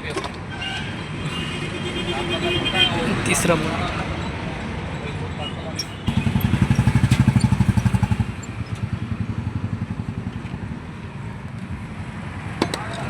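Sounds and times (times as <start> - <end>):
engine chugging: 5.8 - 10.9.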